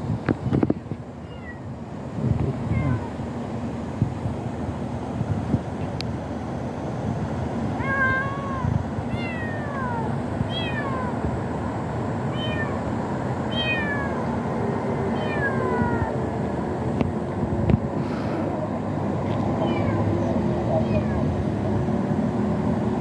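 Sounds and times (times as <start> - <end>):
kitten meowing: 1.2 - 1.6, 2.7 - 3.1, 7.8 - 11.2, 12.3 - 12.8, 13.5 - 14.3, 15.2 - 16.1, 19.6 - 20.1, 20.8 - 21.3.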